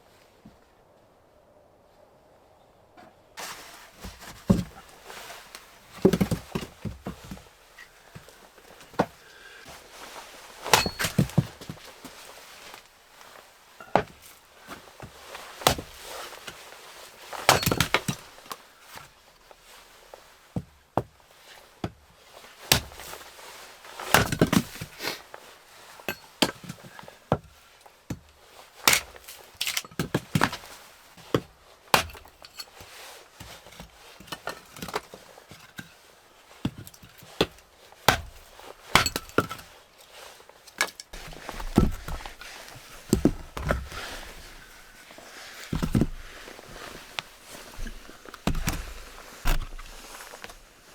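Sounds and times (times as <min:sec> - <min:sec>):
wood cracking and knocking: 0:04.0 - 0:07.4, 0:10.6 - 0:11.9, 0:36.7 - 0:39.7, 0:40.8 - 0:44.6, 0:45.6 - 0:50.6.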